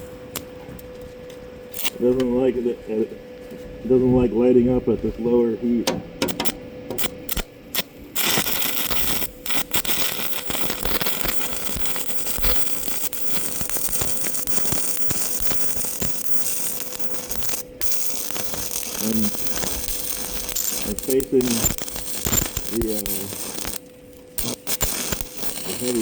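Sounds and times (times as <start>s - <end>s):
welding electrode stuttering strikes: 1.7s - 2.0s, 5.8s - 26.0s
welding arc crackling: 1.7s - 2.1s, 6.2s - 26.0s.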